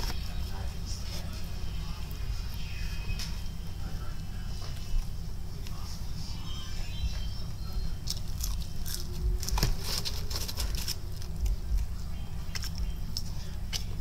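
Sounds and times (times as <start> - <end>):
chewing crunchy fried chicken: 8.0 - 14.0.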